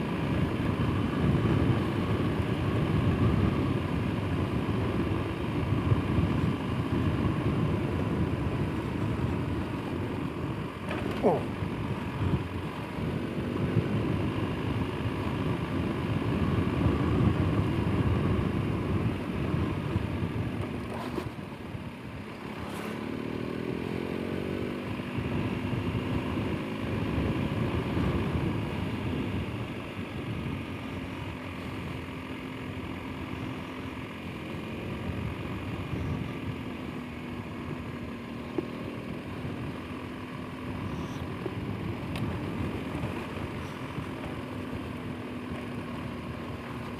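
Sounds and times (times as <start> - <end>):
motorcycle engine running: 0.0 - 46.9
wind and road noise: 0.0 - 46.9.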